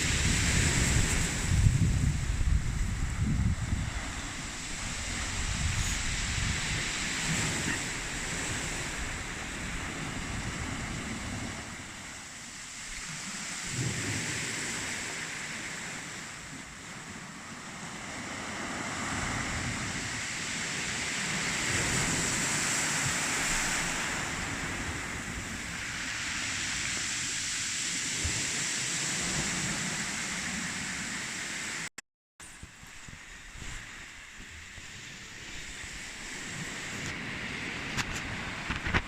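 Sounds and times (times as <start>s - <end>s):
wind buffeting microphone: 0.0s - 12.2s, 32.6s - 39.0s
sea surf: 0.0s - 31.9s, 32.5s - 39.0s.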